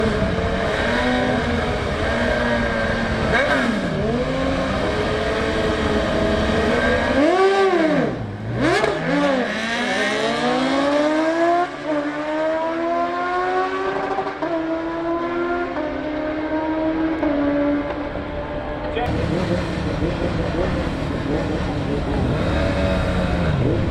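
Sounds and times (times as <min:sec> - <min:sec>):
sportbike engine revving: 0:00.0 - 0:18.2, 0:18.8 - 0:23.9.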